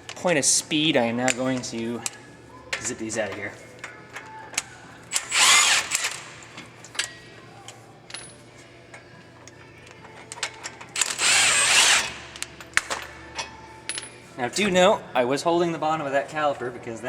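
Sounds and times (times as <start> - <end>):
power tool spinning bolt: 5.1 - 6.4, 11.0 - 12.9.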